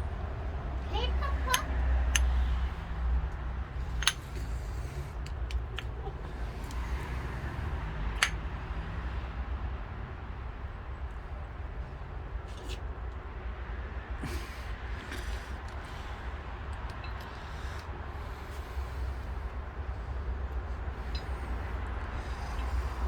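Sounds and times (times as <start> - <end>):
small metal parts clinking: 3.9 - 4.7, 8.2 - 8.4, 21.0 - 21.6.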